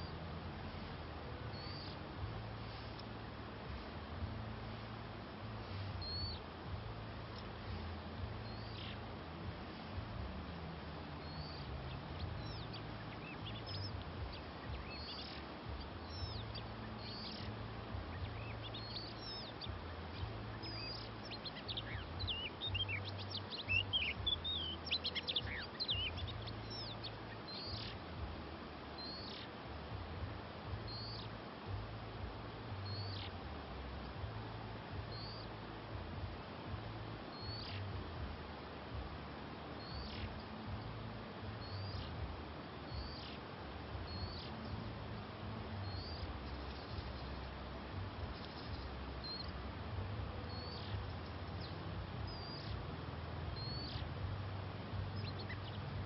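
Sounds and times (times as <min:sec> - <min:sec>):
magpie-robins calling: 0:01.5 - 0:02.0, 0:16.1 - 0:17.5, 0:20.2 - 0:28.0, 0:42.9 - 0:43.4, 0:50.5 - 0:50.9.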